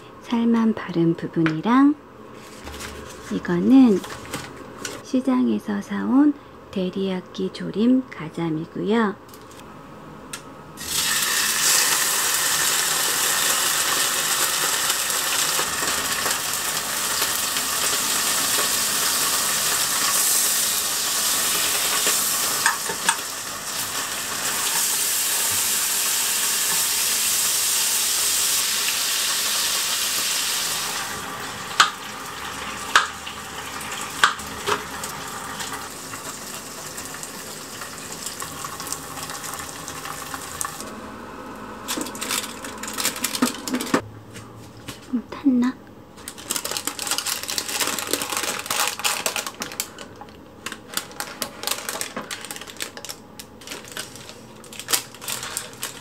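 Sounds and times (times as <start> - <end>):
fish sizzling in a frying pan: 10.8 - 40.8.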